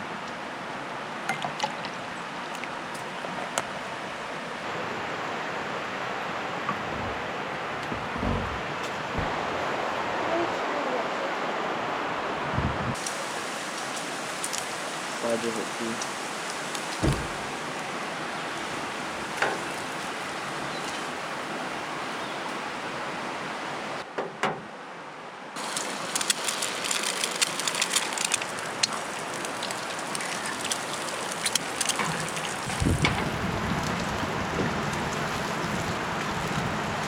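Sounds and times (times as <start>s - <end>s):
low rumble: 6.7s - 9.6s
eggs sizzling in a pan: 25.6s - 32.8s.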